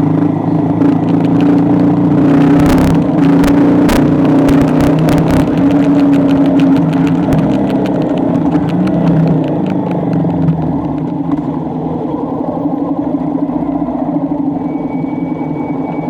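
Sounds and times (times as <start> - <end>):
vehicle engine running: 0.0 - 16.0
faint clicks: 2.7 - 11.6.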